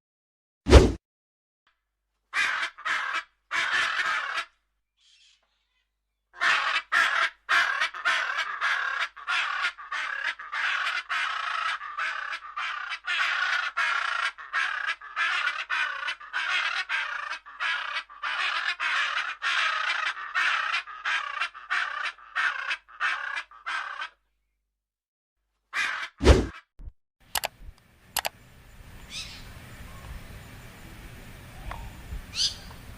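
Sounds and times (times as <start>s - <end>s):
bird scratchy rapid calls: 2.4s - 4.5s, 6.4s - 24.2s, 31.7s - 32.7s.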